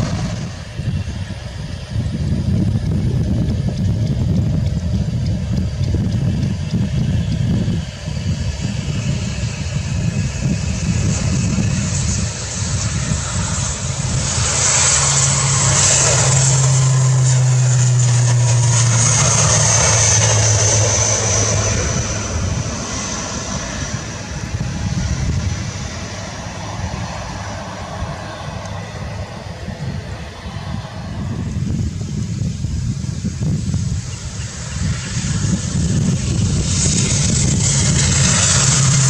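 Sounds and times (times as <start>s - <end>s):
high turbine whine: 0.0s - 39.0s
propeller airliner passing: 0.0s - 39.0s.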